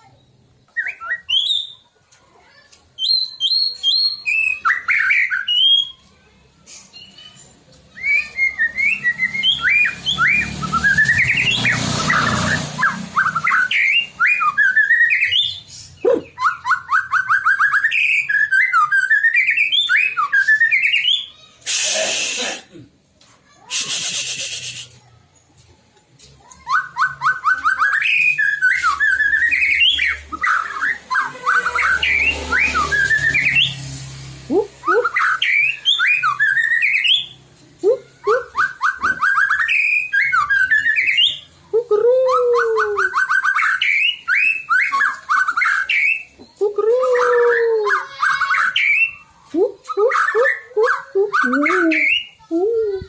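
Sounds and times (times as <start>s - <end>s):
bird singing whistled trills: 0.1s - 1.9s, 3.0s - 6.0s, 7.9s - 21.4s, 26.6s - 33.8s, 34.8s - 37.4s, 38.1s - 52.4s
harsh hissing bursts: 21.6s - 22.7s.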